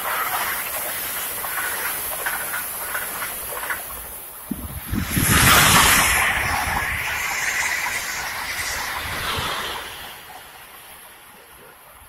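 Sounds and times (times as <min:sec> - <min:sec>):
high-speed train passing: 0:00.0 - 0:12.0.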